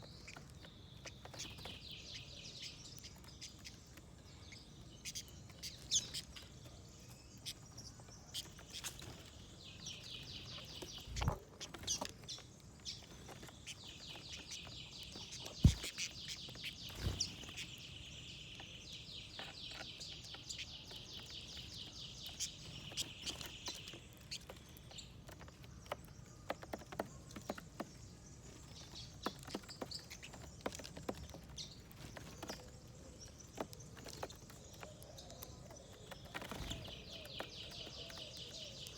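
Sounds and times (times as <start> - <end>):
birds pecking seed taps: 0.0 - 38.9
small songbird trilling: 13.6 - 17.7.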